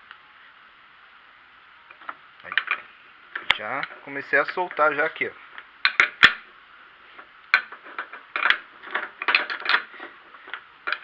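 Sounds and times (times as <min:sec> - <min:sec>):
wrench clicking and rattling: 0:07.5 - 0:11.0.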